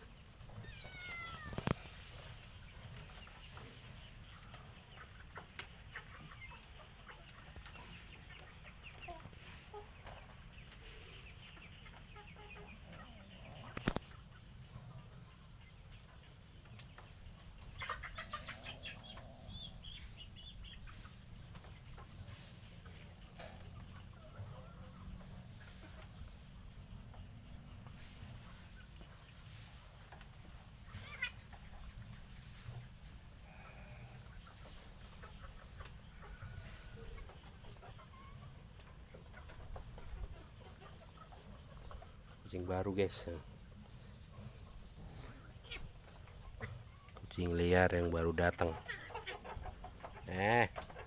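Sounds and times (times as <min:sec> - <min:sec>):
bird clucking calls: 0:00.0 - 0:51.0
animal calls: 0:00.4 - 0:01.9
faint clicks: 0:13.7 - 0:14.2.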